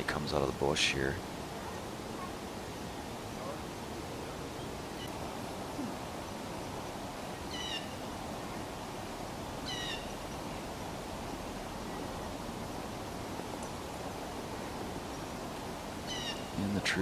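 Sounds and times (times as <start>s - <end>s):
outdoor background hiss: 0.0s - 17.0s
small bird calling: 7.4s - 8.1s, 9.6s - 10.3s, 16.0s - 16.6s.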